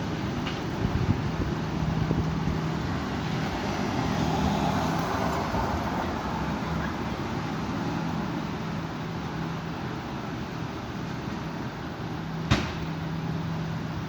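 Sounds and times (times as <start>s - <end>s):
strong wind roaring: 0.0s - 6.6s
road traffic noise: 0.0s - 14.0s.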